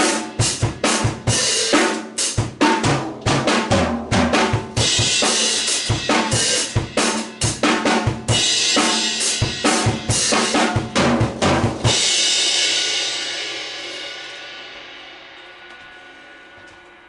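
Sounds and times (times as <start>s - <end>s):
drum kit playing rock beat: 0.0s - 15.3s
cymbal crash ringing: 11.9s - 17.0s.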